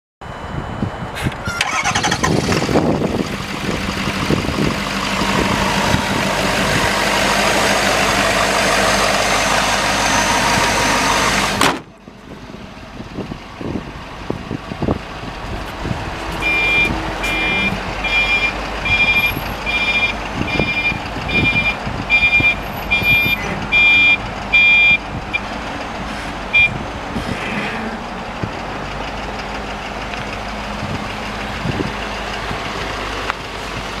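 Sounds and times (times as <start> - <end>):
engine running: 0.3 - 34.0
truck back-up alarm beeping: 1.4 - 3.2, 4.1 - 11.5, 16.4 - 25.5, 26.5 - 26.8.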